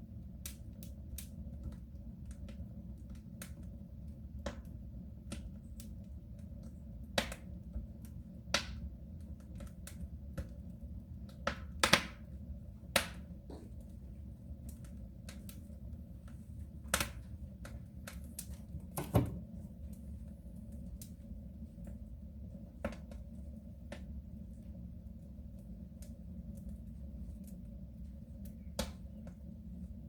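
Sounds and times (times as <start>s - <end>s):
wood fire crackling in a stove: 0.0s - 30.0s
low steady rumble: 7.7s - 30.0s.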